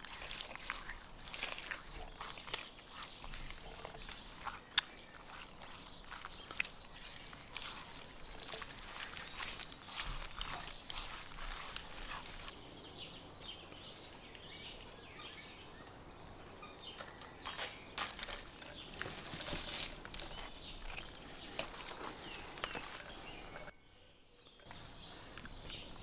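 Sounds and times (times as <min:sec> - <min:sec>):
rustling: 0:00.0 - 0:12.6, 0:17.5 - 0:23.7.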